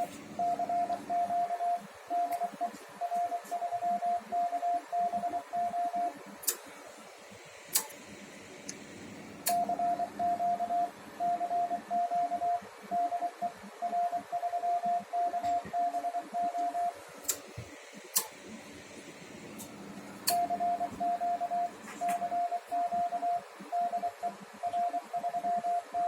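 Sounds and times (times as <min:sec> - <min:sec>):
morse code beeps: 0:00.4 - 0:06.2, 0:09.5 - 0:17.0, 0:20.3 - 0:26.0
sharp clicks: 0:07.7 - 0:08.0, 0:09.4 - 0:09.7, 0:17.2 - 0:17.4, 0:18.1 - 0:18.4, 0:20.2 - 0:20.5.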